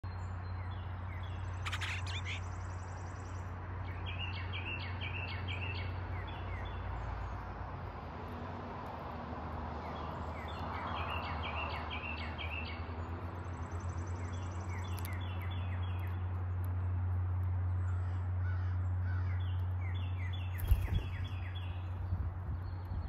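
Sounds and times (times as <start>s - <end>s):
birds calling: 0.4s - 6.7s, 17.8s - 23.0s.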